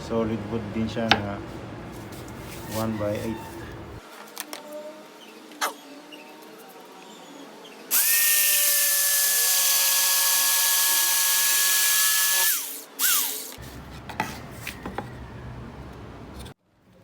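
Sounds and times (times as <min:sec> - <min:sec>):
jigsaw cutting wood: 0:07.9 - 0:13.6.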